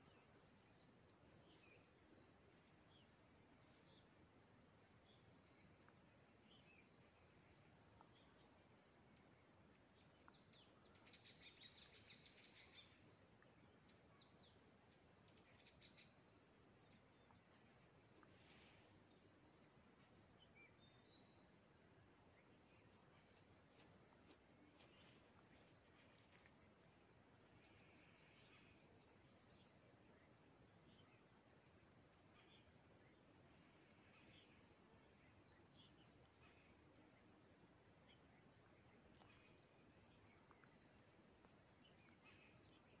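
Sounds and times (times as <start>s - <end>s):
small bird chirps: 0.0s - 43.0s.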